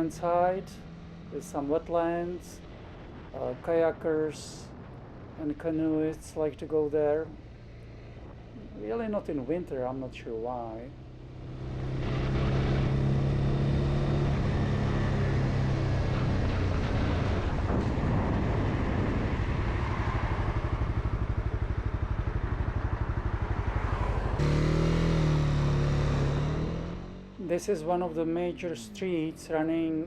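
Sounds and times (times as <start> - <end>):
motorcycle engine running: 10.9 - 29.3.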